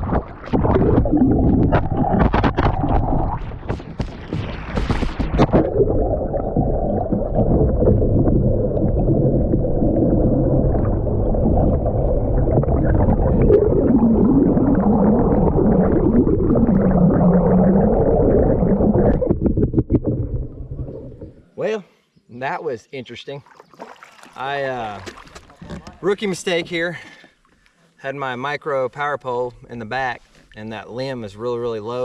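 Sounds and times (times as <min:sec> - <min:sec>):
underwater rushing river water: 0:00.0 - 0:21.4, 0:23.5 - 0:25.8.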